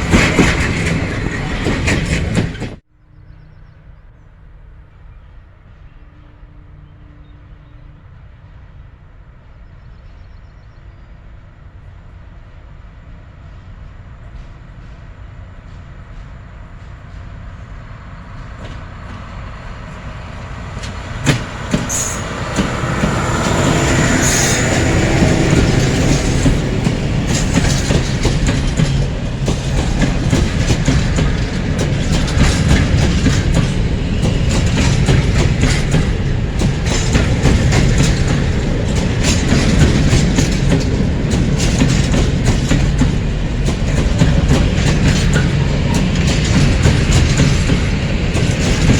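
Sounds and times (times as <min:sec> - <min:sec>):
wheels clattering over rail joints: 0:00.0 - 0:02.8, 0:18.4 - 0:48.9
train wheel squeal: 0:00.0 - 0:03.7, 0:19.8 - 0:48.9
freight train rumble: 0:00.0 - 0:48.9.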